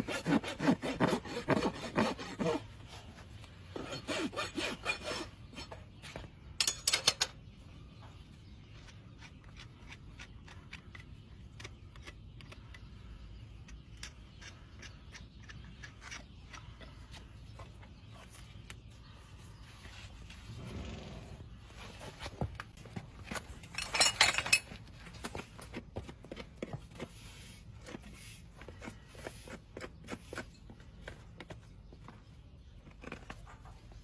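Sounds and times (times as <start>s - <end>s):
rasp filing a hoof: 0.0s - 6.2s, 8.6s - 18.7s, 25.3s - 31.3s.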